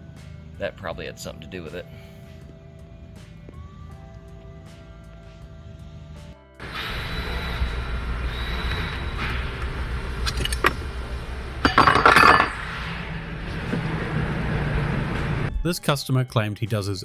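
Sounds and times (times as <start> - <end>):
low shop hum: 0.0 - 15.7
metal tools clinking: 11.6 - 12.6.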